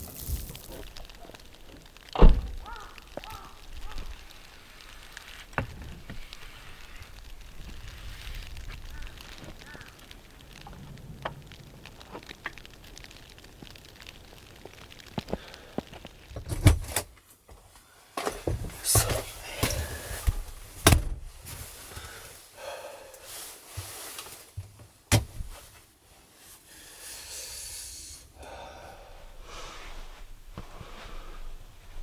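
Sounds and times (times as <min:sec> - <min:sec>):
rustling and scraping: 0:00.0 - 0:13.8, 0:15.9 - 0:22.5, 0:23.2 - 0:26.8
steady hiss: 0:00.0 - 0:17.0, 0:25.3 - 0:32.0.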